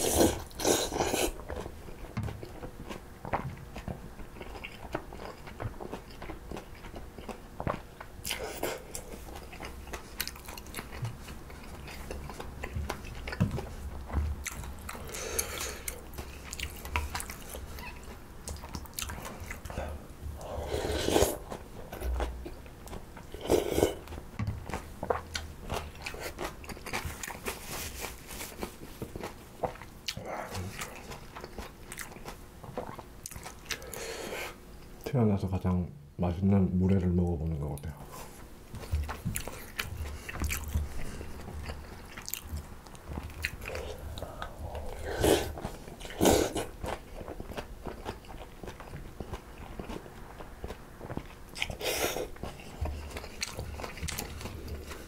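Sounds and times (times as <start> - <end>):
person crunching and chewing: 0.0 - 35.1, 38.8 - 55.0.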